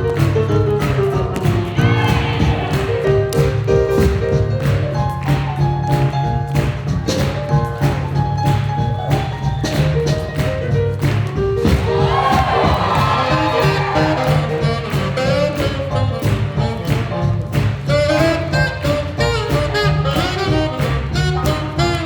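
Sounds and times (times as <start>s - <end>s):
drum strikes: 0.0s - 22.0s
swing jazz band playing: 0.0s - 22.0s.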